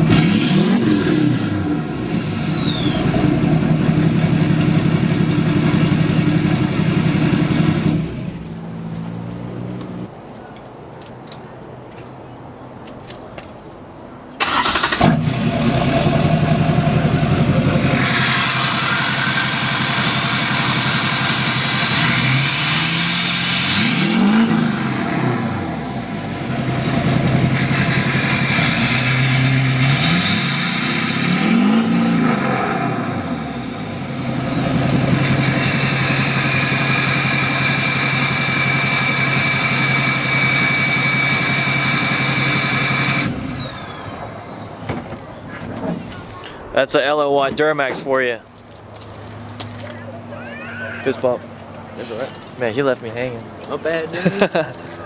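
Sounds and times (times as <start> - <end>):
diesel engine starting and idling: 0.0 - 9.8, 14.4 - 51.4
engine revving: 0.0 - 10.1, 14.4 - 44.2.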